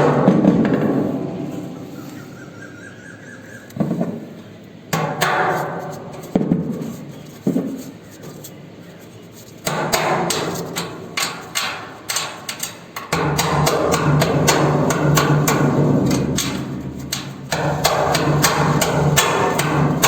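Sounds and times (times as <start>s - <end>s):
hammer striking sheet metal: 4.9s - 6.6s, 9.6s - 20.0s.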